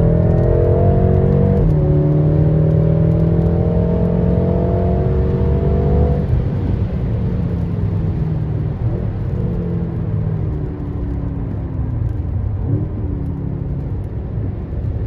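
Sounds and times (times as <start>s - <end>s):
car engine accelerating hard: 0.0s - 11.6s.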